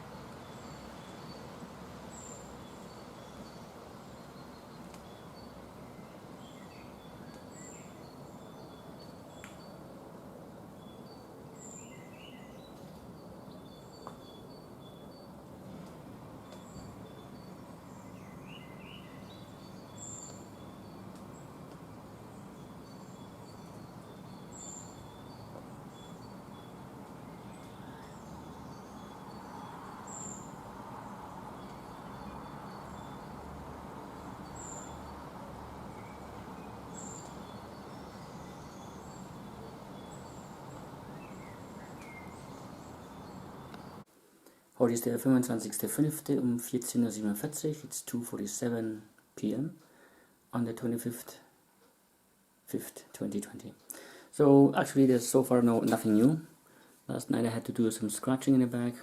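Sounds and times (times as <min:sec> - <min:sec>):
birds chirping: 0:00.0 - 0:44.1
steady background hiss: 0:00.0 - 0:59.0.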